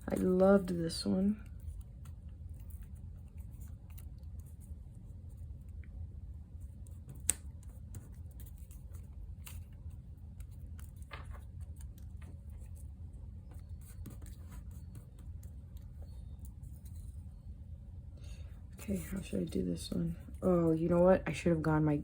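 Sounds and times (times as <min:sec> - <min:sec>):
low hum: 0:00.0 - 0:22.0
paper rustling: 0:06.8 - 0:12.9.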